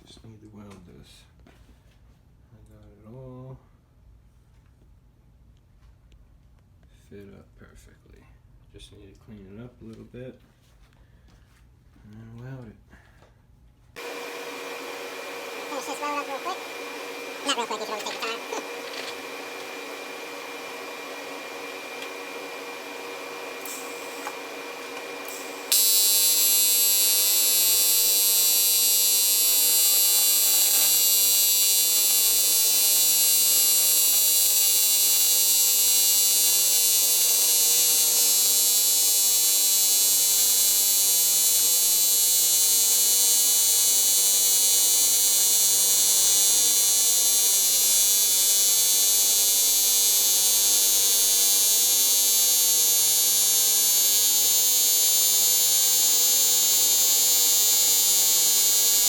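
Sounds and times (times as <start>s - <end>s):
welding arc buzzing: 14.0s - 59.0s.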